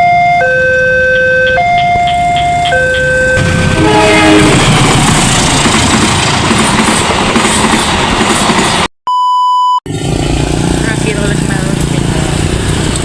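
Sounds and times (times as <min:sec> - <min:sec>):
short steady beep: 0:00.0 - 0:03.4, 0:09.1 - 0:09.8
level crossing alarm: 0:00.0 - 0:04.0
train rushing past: 0:01.0 - 0:08.9, 0:09.9 - 0:13.0.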